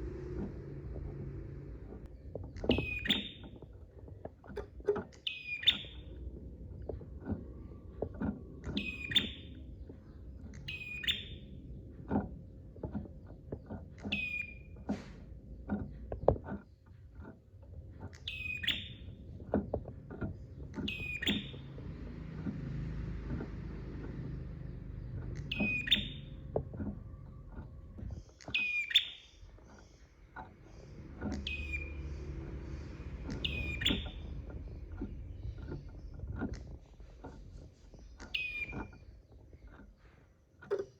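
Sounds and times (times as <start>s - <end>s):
small dull ticks: 0.0s - 40.9s.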